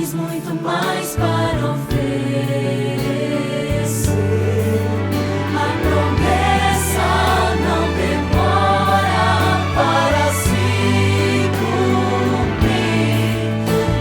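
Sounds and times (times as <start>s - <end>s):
choir singing: 0.0s - 14.0s
steady bass line: 1.2s - 14.0s.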